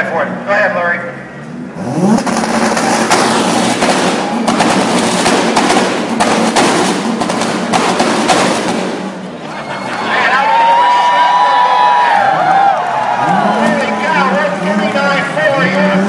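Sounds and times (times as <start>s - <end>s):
car engine revving hard: 1.4s - 9.3s
exhaust popping and crackling: 1.6s - 9.4s.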